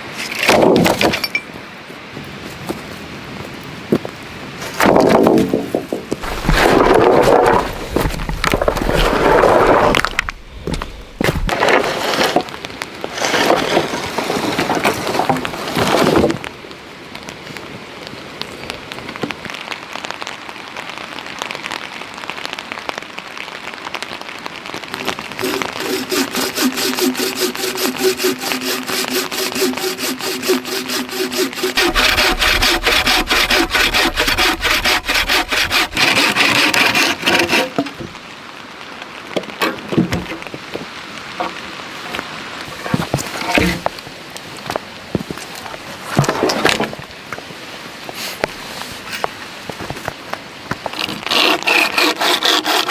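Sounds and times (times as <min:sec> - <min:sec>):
hand saw cutting wood: 0:06.2 - 0:10.2, 0:25.4 - 0:37.9, 0:51.0 - 0:52.9.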